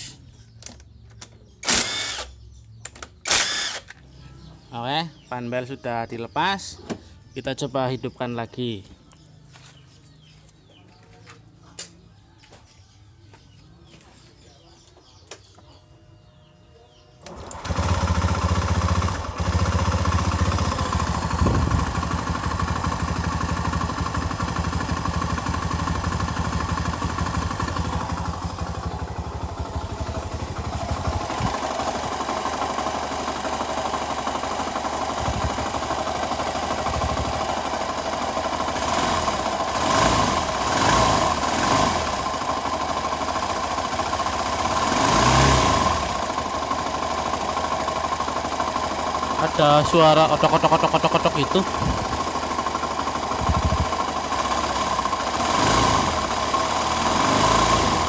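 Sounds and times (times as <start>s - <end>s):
scooter engine running: 14.6s - 58.0s.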